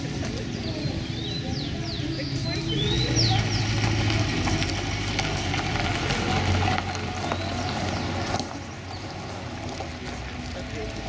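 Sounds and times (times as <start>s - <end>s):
car engine low rumble: 0.0s - 11.0s
bird chirps: 0.4s - 3.9s.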